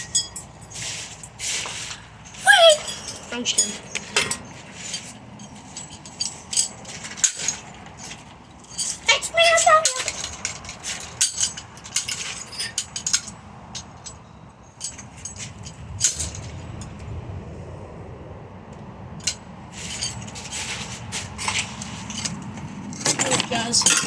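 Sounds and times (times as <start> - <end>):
metal pieces clinking: 0.0 - 14.2, 19.2 - 24.0
low rumble: 15.5 - 20.2.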